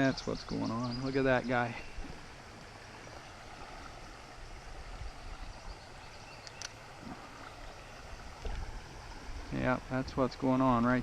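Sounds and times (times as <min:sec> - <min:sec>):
creek water rushing: 0:00.0 - 0:11.0
faint click: 0:06.4 - 0:06.8.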